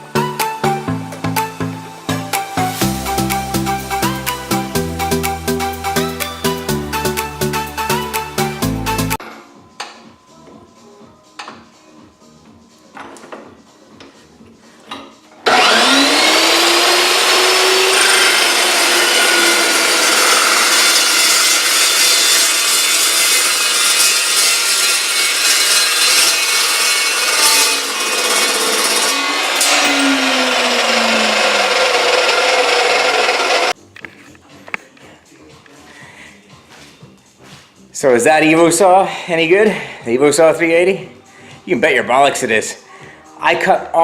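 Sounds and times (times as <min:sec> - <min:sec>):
chop saw cutting steel: 0:15.4 - 0:33.8.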